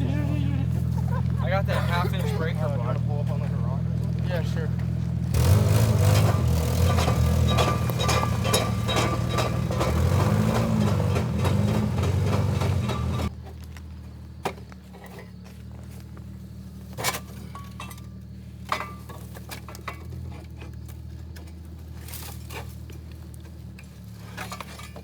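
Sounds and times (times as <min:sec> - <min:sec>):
car engine idling: 0:00.0 - 0:13.3
light clinks and knocks: 0:06.0 - 0:13.7, 0:16.9 - 0:25.0.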